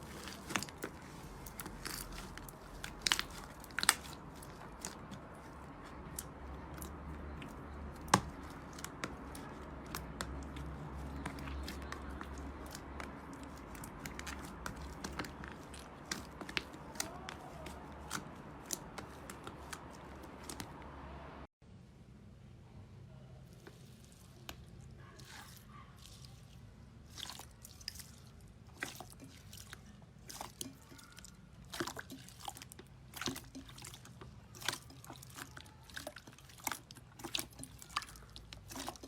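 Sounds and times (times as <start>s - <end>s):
slime crackling and popping: 0.0s - 20.7s.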